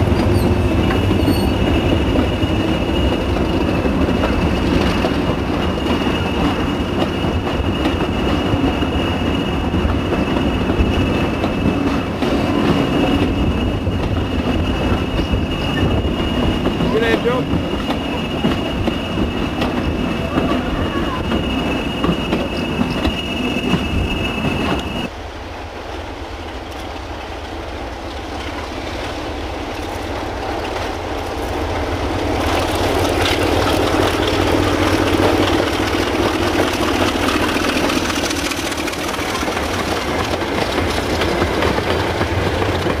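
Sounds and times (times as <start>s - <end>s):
train wheels clattering: 0.0s - 25.1s, 26.5s - 43.0s
wagons rumbling: 0.0s - 25.1s
diesel locomotive engine: 0.0s - 43.0s.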